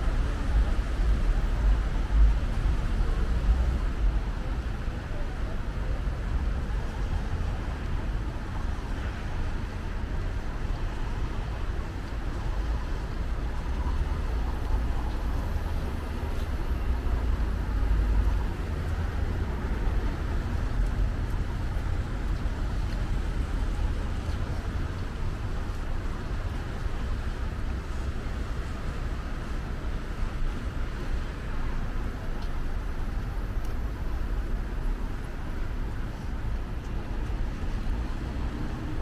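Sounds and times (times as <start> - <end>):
low rumble of city traffic: 0.0 - 39.0.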